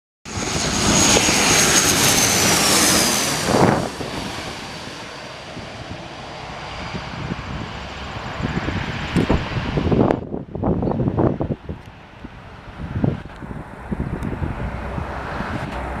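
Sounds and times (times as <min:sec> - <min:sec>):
jet airliner passing: 0:00.3 - 0:16.0.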